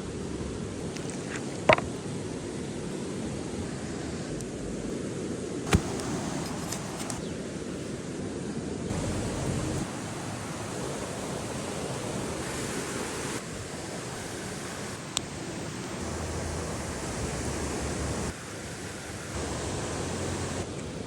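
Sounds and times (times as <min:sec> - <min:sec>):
campfire hissing: 0:05.1 - 0:21.0.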